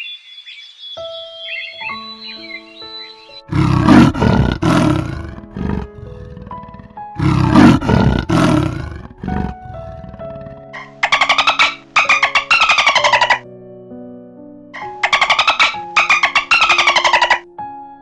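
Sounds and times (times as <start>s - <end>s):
soft background music: 0.9s - 18.0s
leopard rasping grunts: 3.5s - 11.0s.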